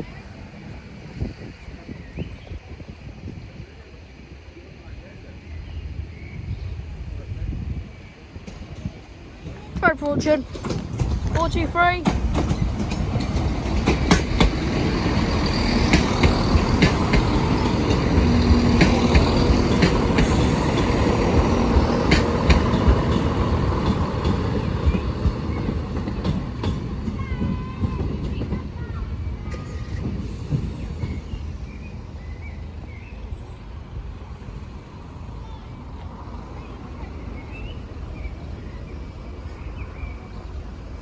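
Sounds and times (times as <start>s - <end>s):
train rumbling past: 0.0s - 41.0s
wheels clacking over rail joints: 8.4s - 31.6s.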